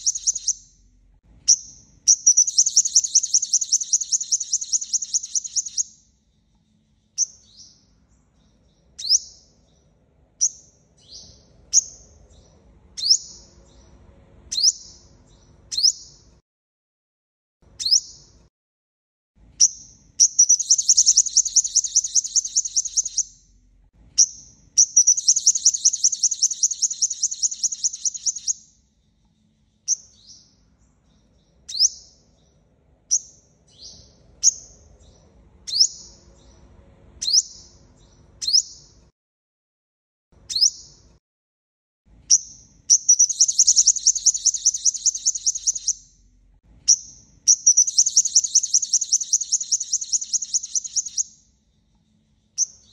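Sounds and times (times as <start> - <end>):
bird high trills: 0.0 - 0.7, 2.2 - 5.9, 20.2 - 23.3, 24.8 - 28.6, 42.9 - 46.0, 47.5 - 51.3.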